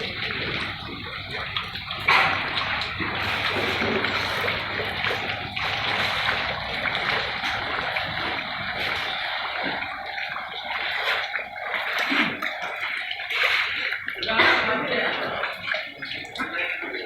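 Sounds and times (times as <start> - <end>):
heavy rain: 0.0 - 12.8
floodwater rushing: 0.0 - 17.0.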